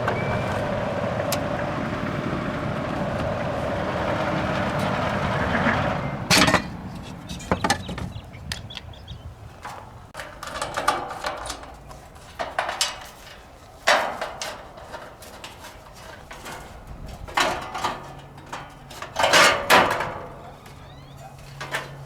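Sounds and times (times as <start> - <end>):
mechanical running noise: 0.0 - 5.1.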